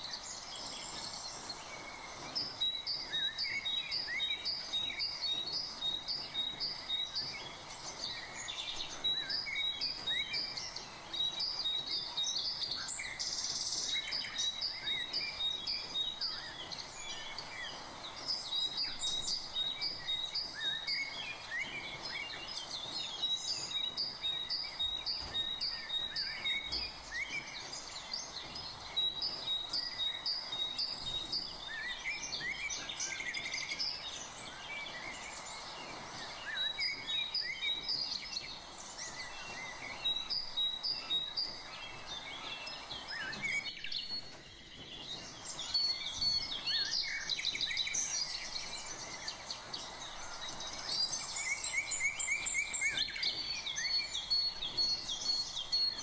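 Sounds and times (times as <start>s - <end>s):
birds chirping: 0.0s - 56.0s
steady background hiss: 0.0s - 56.0s.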